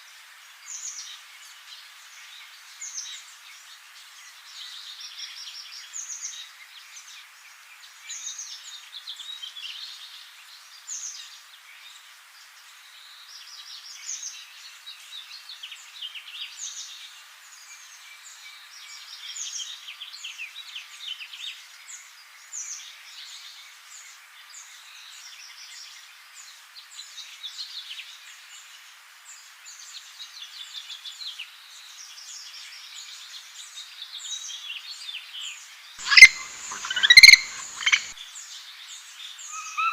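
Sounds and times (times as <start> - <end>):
small birds singing and chirping: 0.4 - 39.9
steady hiss: 35.7 - 39.6.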